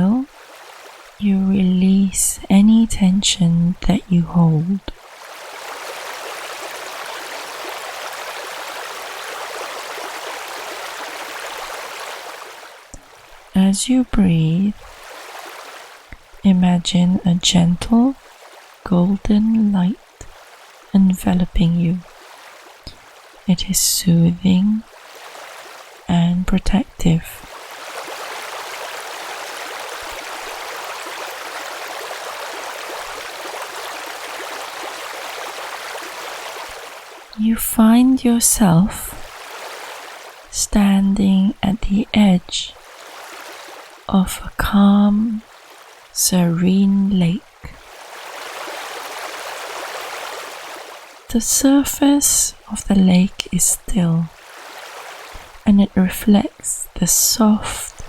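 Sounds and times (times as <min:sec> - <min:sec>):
stream water rushing: 0:00.0 - 0:01.2, 0:04.1 - 0:13.5, 0:14.7 - 0:16.4, 0:18.2 - 0:18.9, 0:19.6 - 0:26.1, 0:27.1 - 0:37.4, 0:38.4 - 0:40.6, 0:42.7 - 0:44.1, 0:45.4 - 0:46.2, 0:47.3 - 0:52.5, 0:53.2 - 0:55.6.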